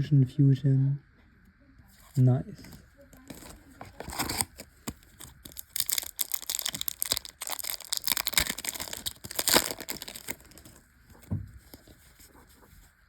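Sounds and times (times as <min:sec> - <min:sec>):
foil wrapper crinkling: 0:02.0 - 0:12.2.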